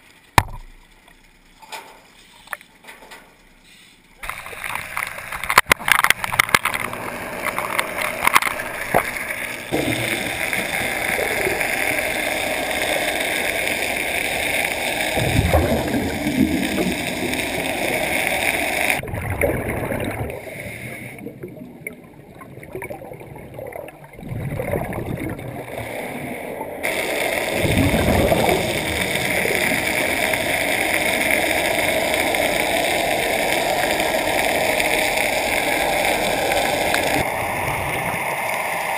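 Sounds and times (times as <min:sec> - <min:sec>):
underwater water churning and gurgling: 0:04.2 - 0:38.9.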